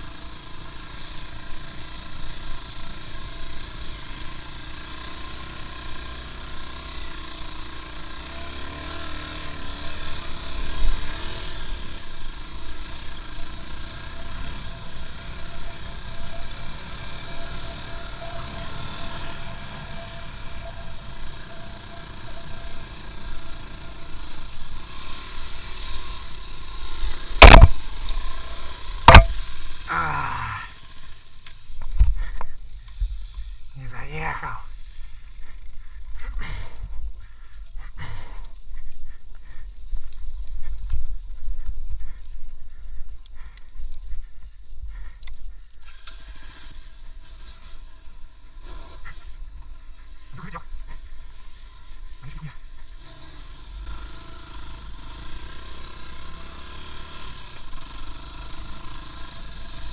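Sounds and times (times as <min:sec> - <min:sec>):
vehicle engine running: 0:00.0 - 0:59.9
short falling whine: 0:27.3 - 0:30.8
sharp knocks: 0:27.4 - 0:27.8.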